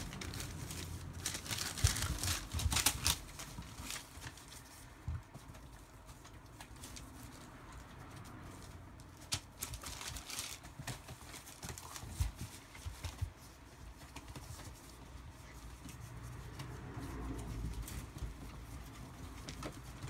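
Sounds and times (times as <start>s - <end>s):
puppy paws clicking on floor: 0.0s - 20.0s.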